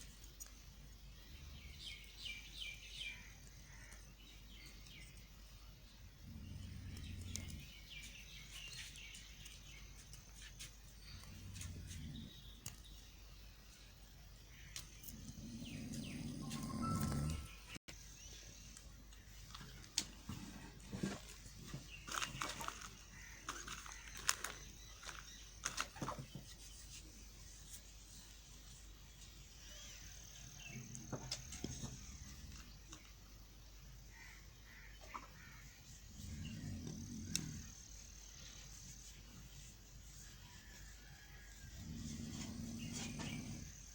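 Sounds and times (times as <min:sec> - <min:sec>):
birds chirping: 0:00.0 - 0:27.7, 0:28.7 - 0:39.7, 0:40.6 - 0:43.9.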